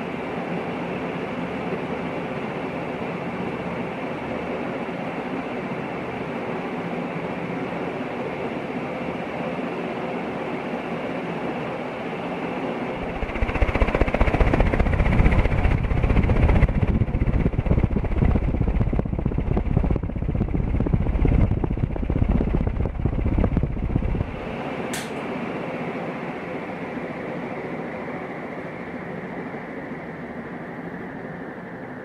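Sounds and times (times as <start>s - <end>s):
ceiling fan whirring hum: 0.0s - 32.0s
uneven low rumble: 13.0s - 24.4s
brief click: 24.9s - 25.2s.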